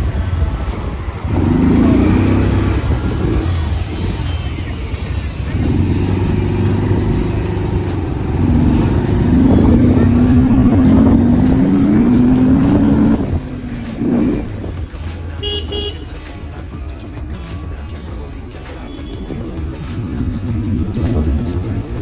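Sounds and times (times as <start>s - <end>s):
engine running: 0.0s - 22.0s
car horn toots: 1.6s - 16.5s, 18.8s - 19.5s.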